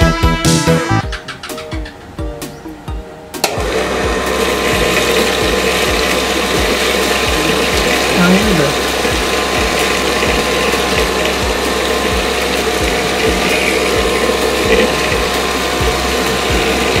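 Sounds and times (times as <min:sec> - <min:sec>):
regular ticking: 0:01.0 - 0:17.0
small electric motor running: 0:03.6 - 0:17.0.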